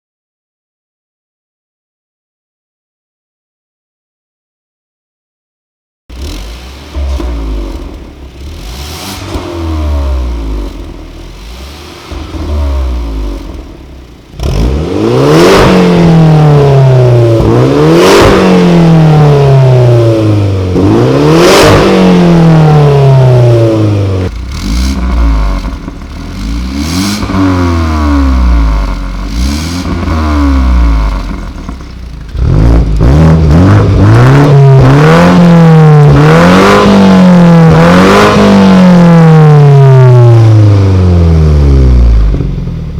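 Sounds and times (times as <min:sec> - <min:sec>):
car engine revving: 0:06.1 - 0:42.9.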